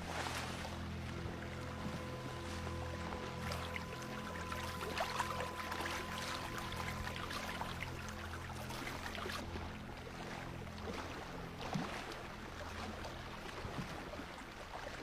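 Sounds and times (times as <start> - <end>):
low steady drone: 0.0 - 15.0
small water splashes: 0.0 - 15.0
water sloshing and lapping: 0.0 - 15.0.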